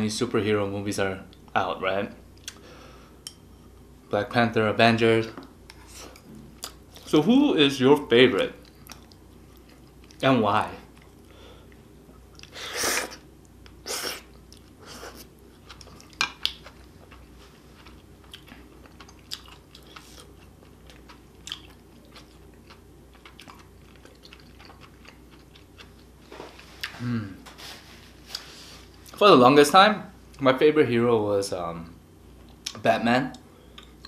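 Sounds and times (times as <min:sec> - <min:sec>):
wet chewing and mouth smacks: 0:08.6 - 0:10.2, 0:13.6 - 0:26.1.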